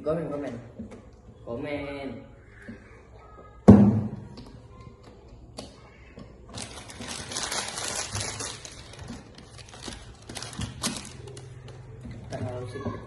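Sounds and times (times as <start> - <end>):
plastic packaging crinkling: 6.5 - 11.8.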